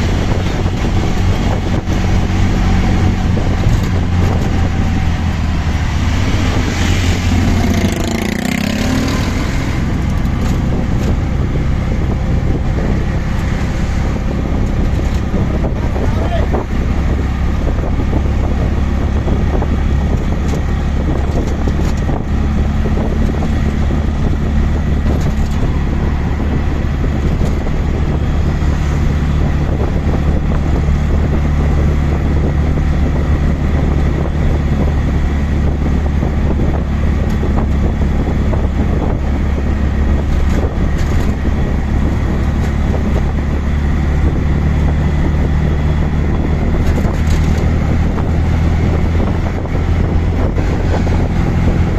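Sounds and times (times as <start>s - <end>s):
auto rickshaw engine running: 0.0s - 51.9s
wind noise on microphone: 0.0s - 51.9s.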